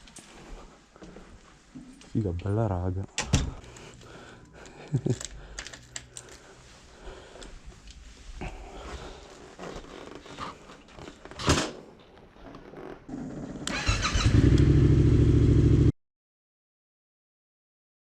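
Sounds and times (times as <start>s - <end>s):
motorcycle engine starting and idling: 13.1s - 15.9s.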